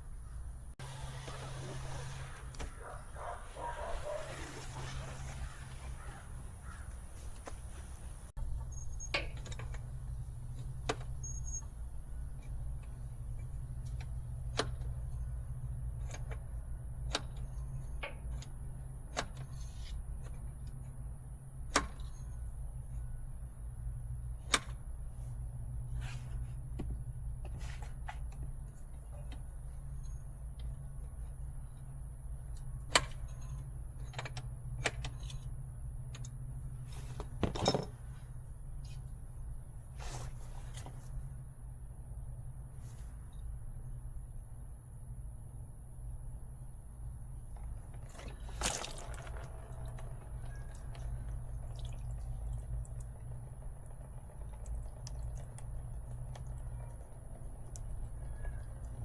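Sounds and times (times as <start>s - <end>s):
steady low hum: 0.0s - 59.0s
tools clinking and knocking: 37.4s - 38.0s
liquid dripping: 48.1s - 59.0s.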